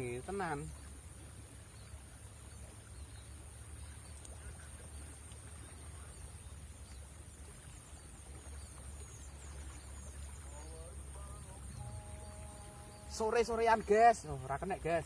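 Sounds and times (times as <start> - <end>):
faint chirps: 1.7 - 14.3
high-pitched hum: 10.6 - 13.4.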